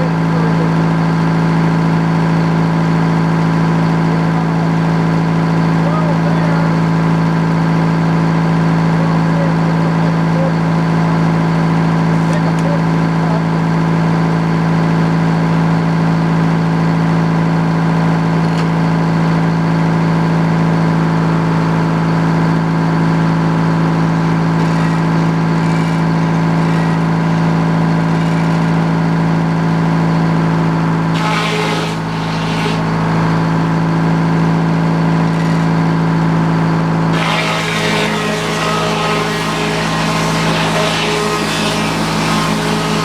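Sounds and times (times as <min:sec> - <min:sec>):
sawmill engine running: 0:00.0 - 0:43.0
short noisy bursts: 0:31.1 - 0:33.3, 0:37.1 - 0:43.0.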